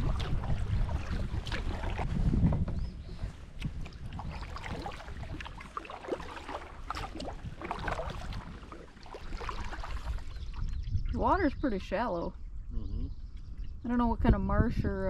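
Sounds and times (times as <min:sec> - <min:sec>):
paddle strokes in water: 0:00.0 - 0:11.0
wind rumble on microphone: 0:00.0 - 0:15.0.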